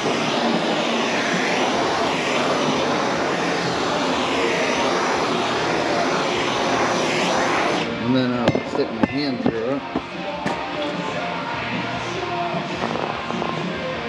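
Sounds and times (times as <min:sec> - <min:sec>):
heat gun blowing air: 0:00.0 - 0:07.9.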